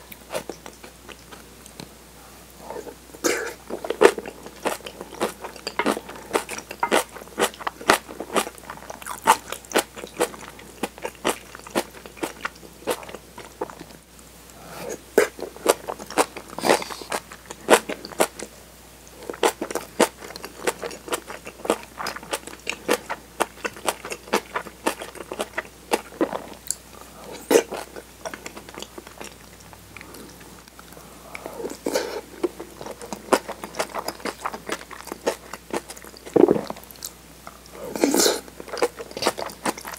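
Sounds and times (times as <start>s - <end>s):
crunchy chewing: 2.7s - 13.9s, 19.2s - 39.9s.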